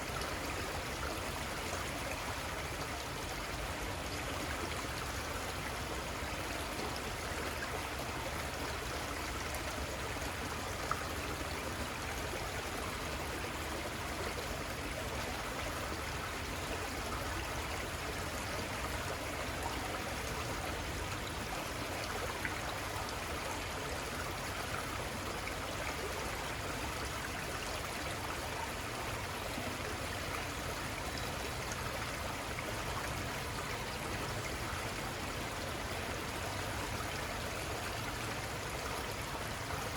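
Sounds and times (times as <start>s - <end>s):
river water babbling over stones: 0.0s - 39.9s.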